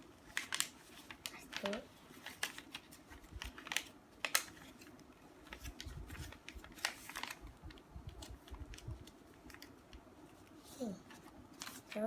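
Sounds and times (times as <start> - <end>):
paper crackling as folded: 0.1 - 12.0
paper rubbing and handling: 0.2 - 9.8.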